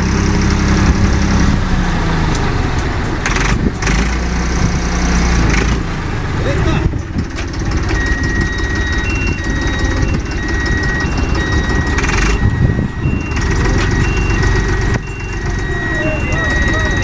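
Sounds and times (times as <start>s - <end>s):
heavy vehicle engine rumble: 0.0s - 17.0s
reversing alarm beeps: 7.9s - 17.0s.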